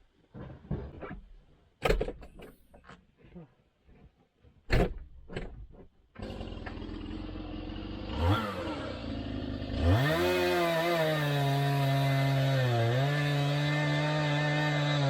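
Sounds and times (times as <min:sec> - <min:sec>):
chainsaw engine revving: 0:06.2 - 0:15.0.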